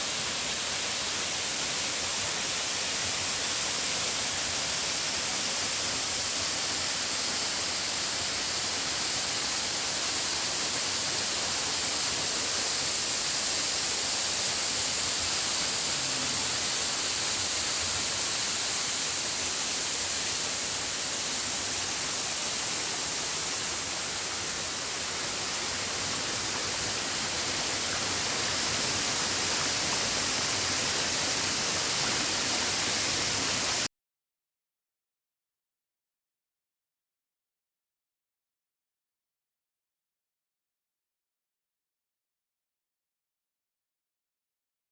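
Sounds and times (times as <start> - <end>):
waterfall rushing: 14.0 - 33.9.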